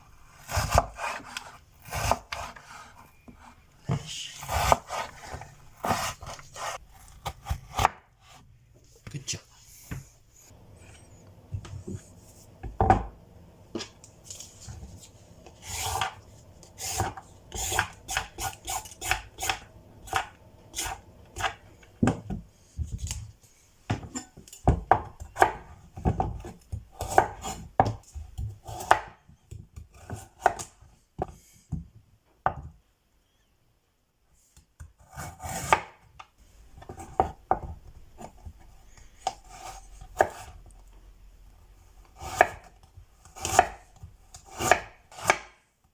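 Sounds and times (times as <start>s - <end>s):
knife chopping on cutting board: 0.4s - 2.8s, 4.4s - 8.4s, 15.6s - 22.4s, 23.9s - 29.2s, 29.8s - 30.7s, 35.0s - 36.0s, 39.2s - 40.5s, 42.2s - 45.6s.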